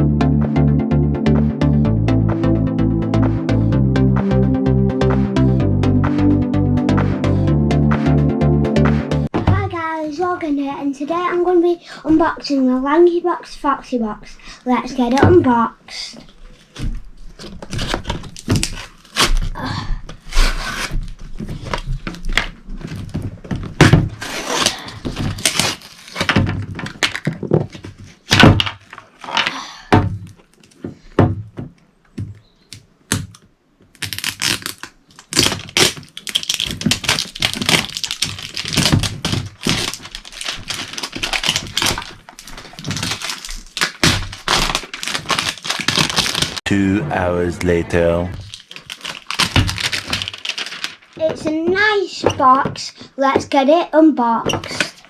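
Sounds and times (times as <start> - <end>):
cardboard scraping and tearing: 16.5 - 19.6, 20.2 - 29.4, 34.0 - 46.6, 48.4 - 52.0.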